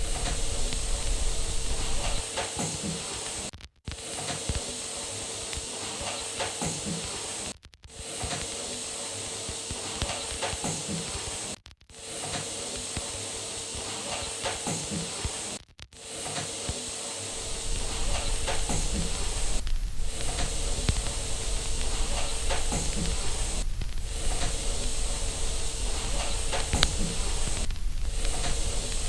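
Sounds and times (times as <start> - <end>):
low rumble: 0.0 - 2.2, 17.4 - 29.0
faint steady hum: 0.0 - 2.3, 17.3 - 29.0
white-noise hiss: 0.0 - 3.5, 16.3 - 29.0.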